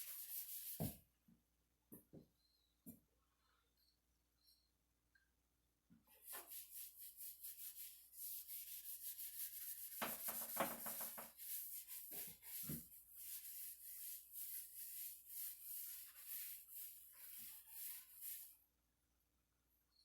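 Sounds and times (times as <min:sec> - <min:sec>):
hand rubbing wood: 0:06.2 - 0:18.6.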